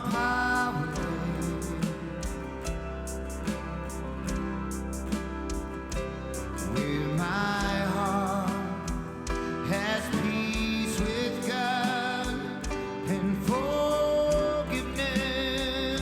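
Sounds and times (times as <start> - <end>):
person singing long notes: 0.0 - 2.8
acoustic guitar: 0.0 - 16.0
steady drum beat: 0.0 - 16.0.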